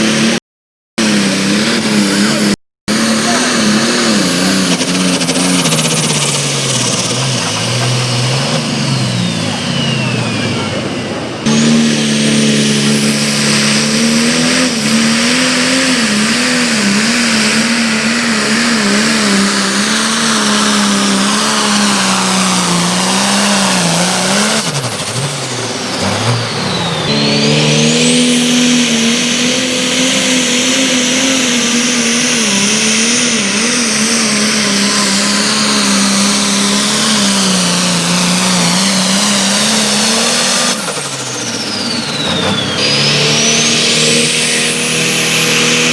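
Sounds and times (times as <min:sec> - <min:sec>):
vehicle engine under load: 0:00.0 - 0:00.4, 0:01.0 - 0:45.9
high gliding whistle: 0:26.5 - 0:29.9, 0:41.1 - 0:45.9.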